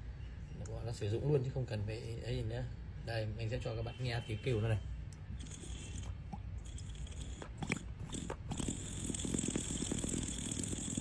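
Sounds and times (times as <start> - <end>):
water pipe bubbling gurgle: 5.4 - 11.0.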